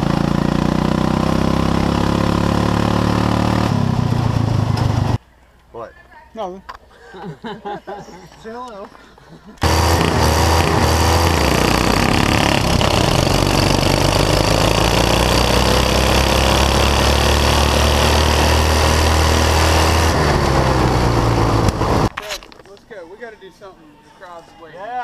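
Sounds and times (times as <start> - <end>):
lawn tractor engine running: 9.6 - 22.1.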